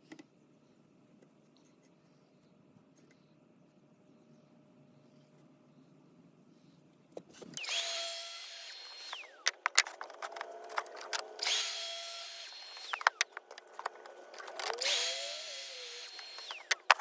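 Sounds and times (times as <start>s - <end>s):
power tool motor whining: 7.6s - 17.0s
knocks and clicks of wood and tools: 8.9s - 11.6s, 12.6s - 15.0s, 16.1s - 17.0s.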